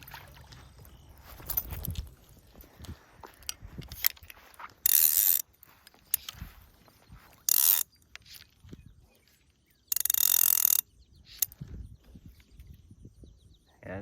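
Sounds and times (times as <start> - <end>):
fishing reel ratchet clicking: 3.4 - 6.4, 7.4 - 8.3, 9.9 - 11.6.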